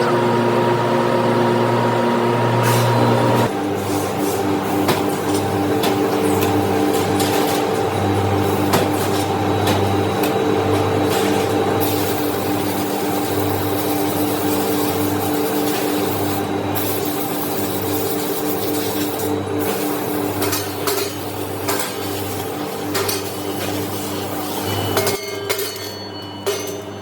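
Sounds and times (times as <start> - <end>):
workshop machinery humming: 0.0 - 27.0.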